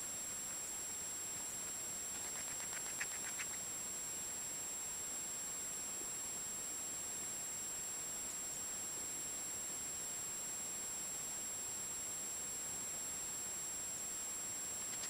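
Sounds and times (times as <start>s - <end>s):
steady hiss: 0.0s - 15.0s
rat chirping: 1.6s - 3.7s, 14.8s - 15.0s.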